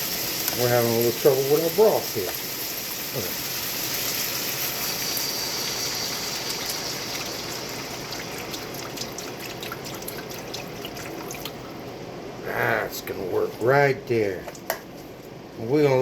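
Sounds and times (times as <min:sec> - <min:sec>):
broth pouring into hot skillet: 0:00.0 - 0:11.9
simmering pan crackles: 0:00.0 - 0:12.1.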